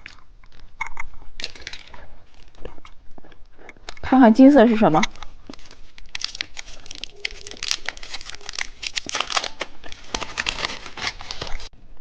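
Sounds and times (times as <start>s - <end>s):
candy wrapper crinkling: 0.0s - 4.0s, 4.8s - 11.7s.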